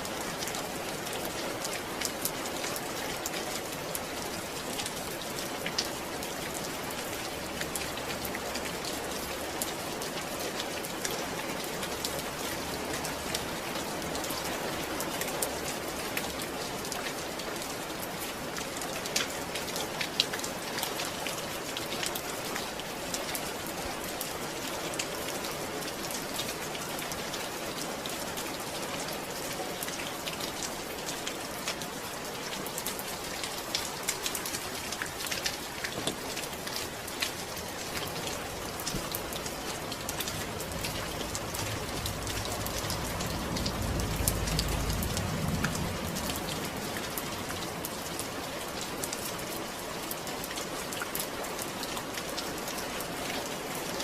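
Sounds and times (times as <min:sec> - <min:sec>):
steady rainfall: 0:00.0 - 0:54.0
low rumble: 0:40.4 - 0:46.9.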